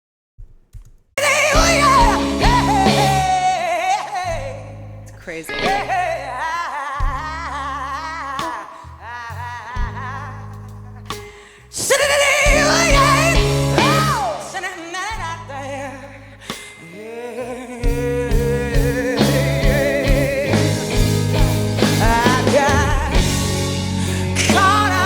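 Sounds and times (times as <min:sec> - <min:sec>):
steady drums: 0:00.4 - 0:04.8, 0:07.0 - 0:07.8, 0:09.8 - 0:15.8, 0:17.8 - 0:25.0
rock band playing: 0:01.2 - 0:04.8, 0:05.4 - 0:06.3, 0:11.1 - 0:15.8, 0:17.9 - 0:25.0
woman singing with vibrato: 0:01.2 - 0:10.5, 0:11.8 - 0:21.2, 0:21.8 - 0:25.0.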